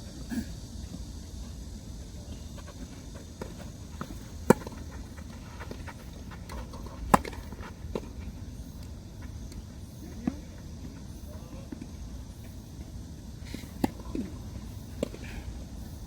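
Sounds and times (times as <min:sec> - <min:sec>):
racket striking tennis ball: 0:03.4 - 0:07.6.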